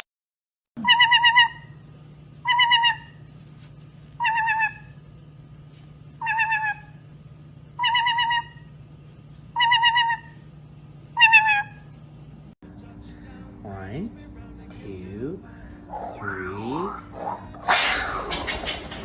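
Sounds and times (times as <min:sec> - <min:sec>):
parrot warbling call: 0:00.8 - 0:01.8, 0:02.4 - 0:03.2, 0:04.2 - 0:05.0, 0:06.2 - 0:07.0, 0:07.8 - 0:08.7, 0:09.6 - 0:10.4, 0:11.2 - 0:11.9
steady low hum: 0:00.8 - 0:19.0.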